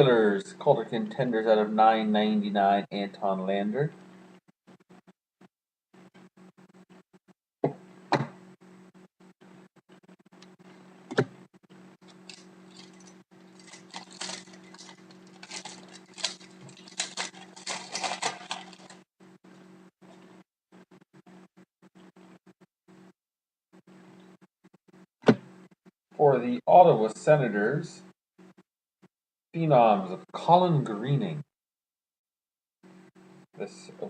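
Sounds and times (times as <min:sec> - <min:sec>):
steady low hum: 0:05.9 - 0:22.4
cards rustling and scraping: 0:12.0 - 0:19.0.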